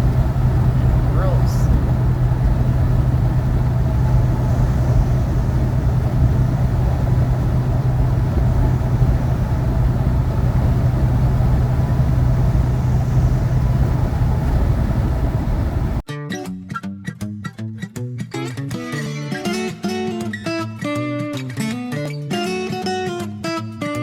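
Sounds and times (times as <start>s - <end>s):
tyres rumbling on road: 0.0s - 16.0s
vehicle engine hum: 0.0s - 16.0s
wind noise: 0.0s - 16.0s.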